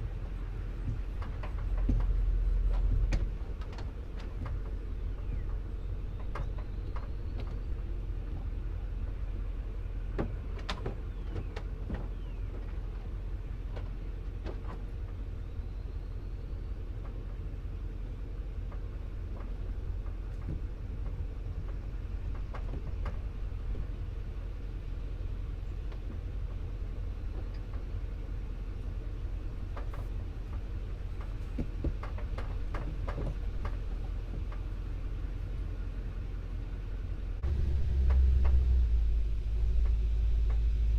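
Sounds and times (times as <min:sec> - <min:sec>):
truck knocks and rattles: 0:00.0 - 0:15.5, 0:16.8 - 0:24.8, 0:25.4 - 0:36.2
truck engine and road rumble: 0:00.0 - 0:40.9.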